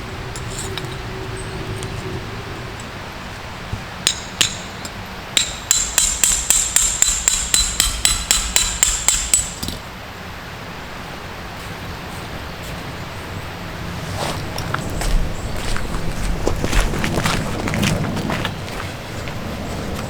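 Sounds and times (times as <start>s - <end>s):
hammer striking metal: 4.0s - 9.8s.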